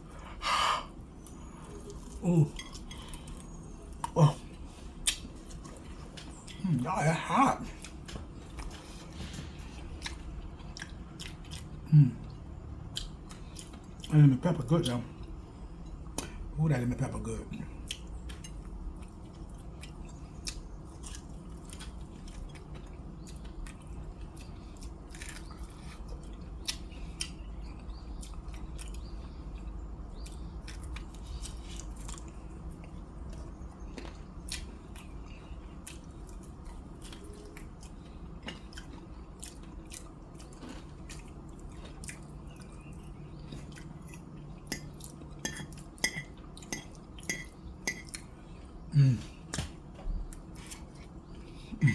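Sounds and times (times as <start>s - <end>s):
person chewing and biting: 17.9s - 48.3s.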